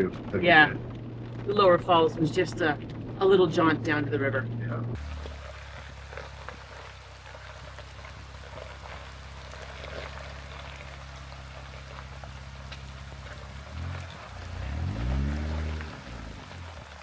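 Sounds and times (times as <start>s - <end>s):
low steady hum: 0.0s - 14.8s
rain falling: 5.0s - 17.0s
raindrops ticking: 5.0s - 17.0s.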